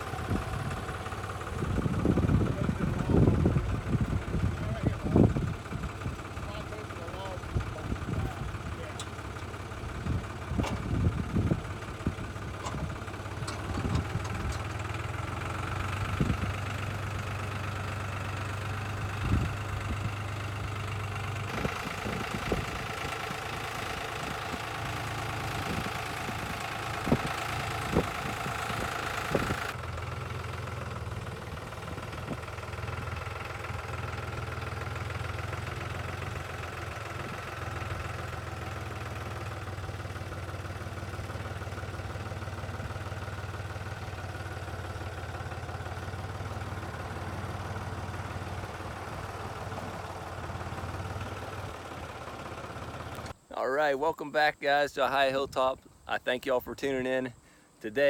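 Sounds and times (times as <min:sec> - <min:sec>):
tractor engine idling: 0:00.0 - 0:58.0
knocks and clunks: 0:10.5 - 0:11.1, 0:12.6 - 0:15.1.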